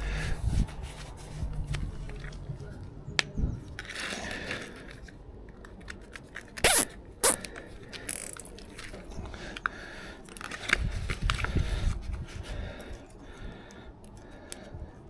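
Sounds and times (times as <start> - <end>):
cable ties zipping: 6.6 - 7.4, 8.1 - 8.6.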